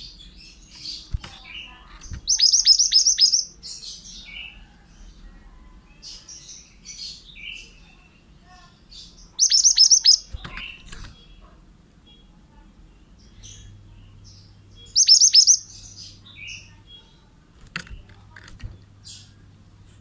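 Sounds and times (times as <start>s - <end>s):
soft bird chirps: 0.0s - 19.5s.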